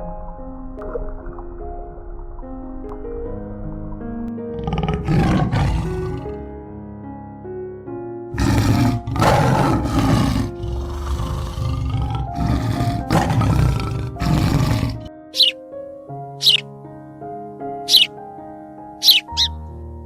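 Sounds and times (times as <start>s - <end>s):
background music: 0.0s - 20.0s
large animal loud calls: 8.4s - 15.6s, 16.4s - 16.6s, 17.9s - 18.1s, 19.0s - 19.6s.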